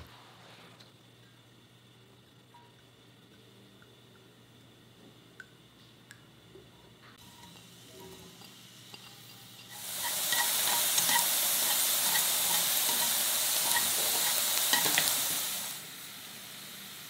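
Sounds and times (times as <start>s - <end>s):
mushrooms sizzling in oil: 7.2s - 17.0s
wooden utensil clicking on pan: 10.3s - 15.3s.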